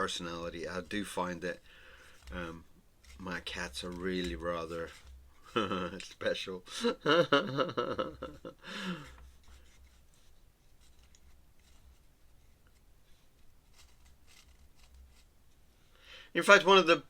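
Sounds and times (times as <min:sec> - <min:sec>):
person speaking: 0:00.0 - 0:07.1, 0:16.3 - 0:17.0
pen scratching on paper: 0:13.6 - 0:15.3.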